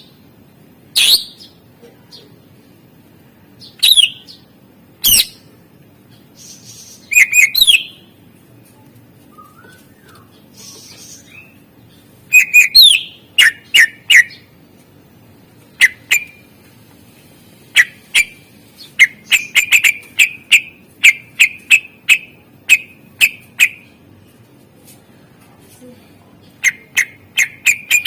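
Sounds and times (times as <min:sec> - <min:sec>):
bird whistling sharp notes: 0:07.1 - 0:08.0.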